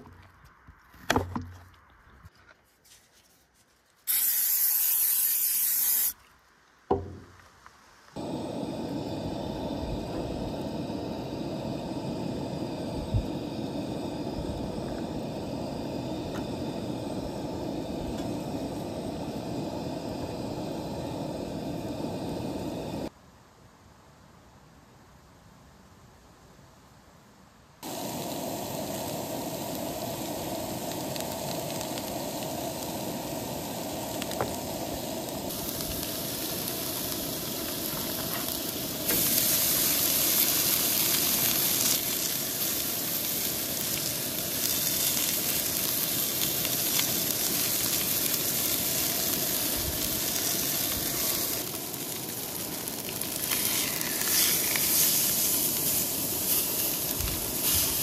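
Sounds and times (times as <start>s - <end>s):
food sizzling in frying: 4.1s - 6.2s, 27.8s - 58.0s.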